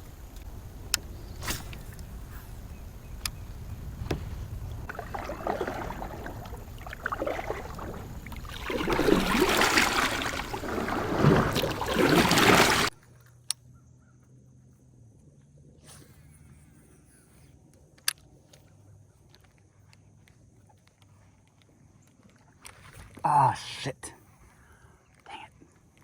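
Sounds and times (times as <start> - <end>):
faint clicks: 0.0 - 4.9
low rumbling wind noise: 0.0 - 12.9
water sloshing around a kayak: 0.0 - 13.2, 18.6 - 26.0.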